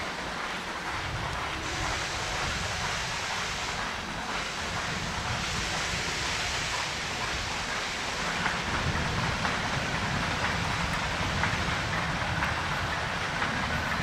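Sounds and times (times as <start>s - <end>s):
train rushing noise: 0.0s - 14.0s
wheel clicks on rails: 6.5s - 14.0s.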